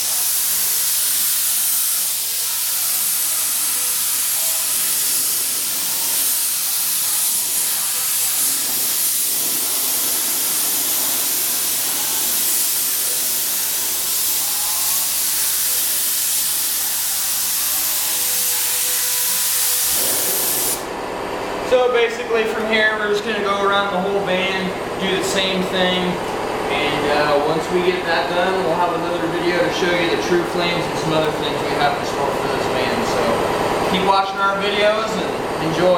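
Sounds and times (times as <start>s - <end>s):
paint spray gun hissing: 0.0s - 20.9s.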